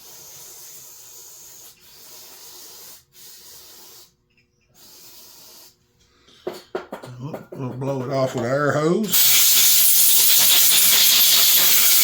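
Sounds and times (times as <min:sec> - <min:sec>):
aerosol spray hissing: 0:00.0 - 0:04.1, 0:04.8 - 0:05.7, 0:09.1 - 0:12.0.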